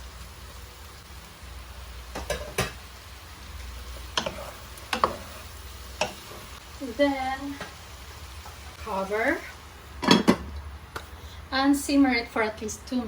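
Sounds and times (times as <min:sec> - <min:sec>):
meat sizzling in oil: 0:00.0 - 0:13.0.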